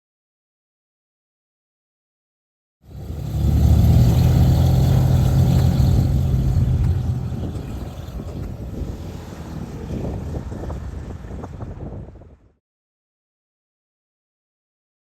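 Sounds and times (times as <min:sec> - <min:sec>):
piston engine drone: 0:02.9 - 0:11.5.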